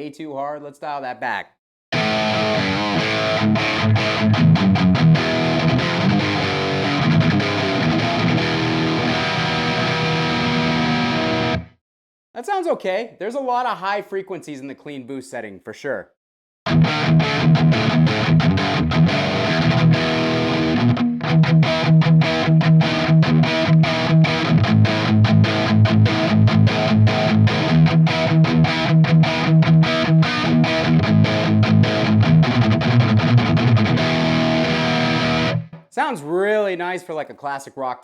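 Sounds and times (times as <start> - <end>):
electric guitar strumming chords: 2.0 - 11.8, 16.7 - 35.9.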